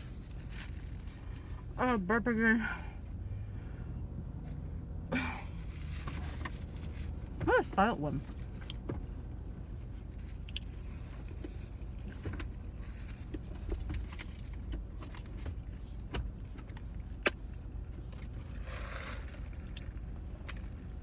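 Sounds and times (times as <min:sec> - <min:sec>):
car interior rumble: 0:00.0 - 0:21.0
clicks and rustles of eating: 0:10.1 - 0:21.0.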